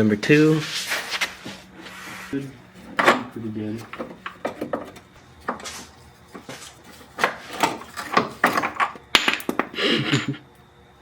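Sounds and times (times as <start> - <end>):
tools scraping and knocking: 1.4 - 9.7.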